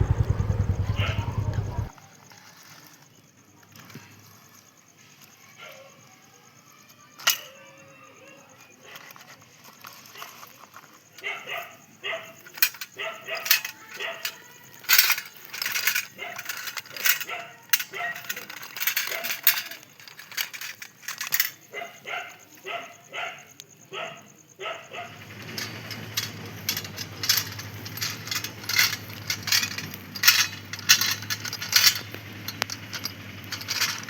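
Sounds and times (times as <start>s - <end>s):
dog barking rapidly: 0.8s - 1.9s, 13.0s - 14.2s, 16.2s - 16.5s, 17.2s - 18.2s, 21.7s - 25.3s.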